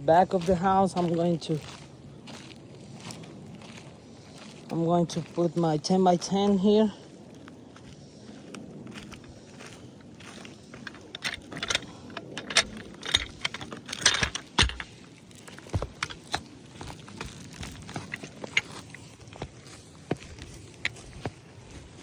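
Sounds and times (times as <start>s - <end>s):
tools clicking and scraping on roof: 10.8s - 21.3s.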